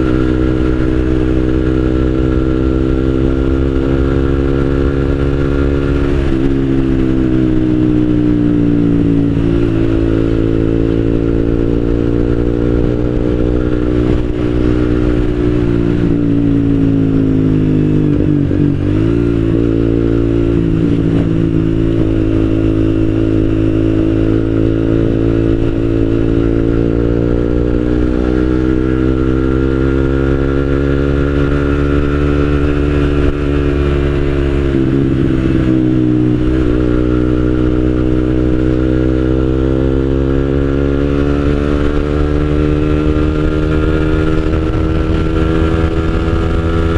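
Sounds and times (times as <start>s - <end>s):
motorcycle exhaust while riding: 0.0s - 46.9s.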